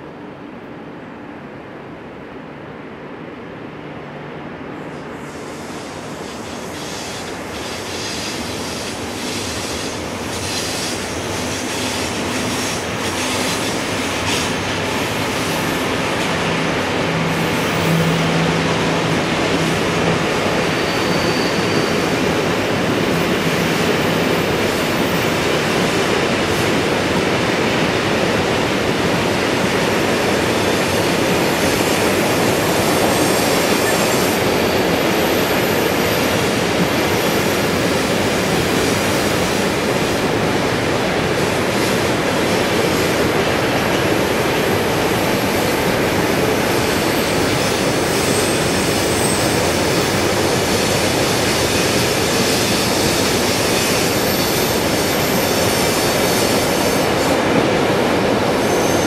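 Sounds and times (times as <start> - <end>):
freight train rumbling on rails: 0.0 - 59.0
brake and wheel squeal: 20.6 - 22.4, 47.2 - 57.0, 58.6 - 59.0.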